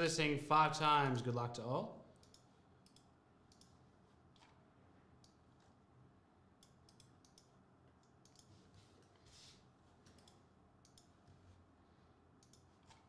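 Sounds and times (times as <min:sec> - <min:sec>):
soft rustle: 0:08.5 - 0:10.1
faint clicks: 0:12.4 - 0:13.0.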